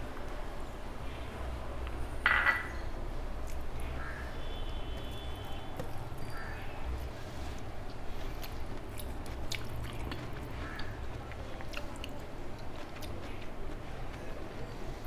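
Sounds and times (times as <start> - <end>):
person chewing food: 7.0 - 15.0.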